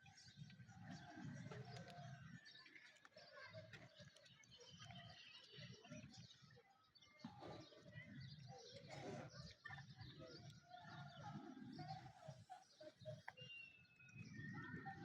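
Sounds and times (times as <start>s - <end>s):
birds chirping and whistling: 13.1s - 15.0s.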